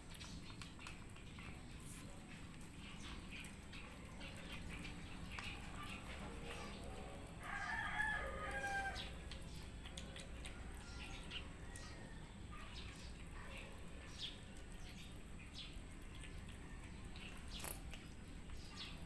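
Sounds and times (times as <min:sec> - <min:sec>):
faint scattered clicks: 0:00.0 - 0:19.0
rooster crowing: 0:07.4 - 0:09.1.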